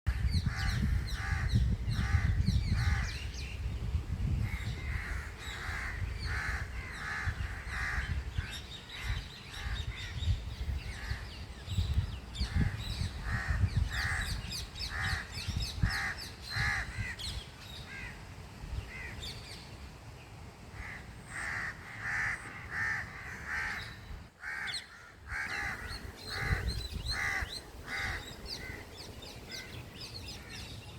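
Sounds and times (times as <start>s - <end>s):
crows cawing: 4.5s - 8.2s, 15.9s - 17.2s, 20.8s - 29.8s
small birds chirping: 23.6s - 30.9s.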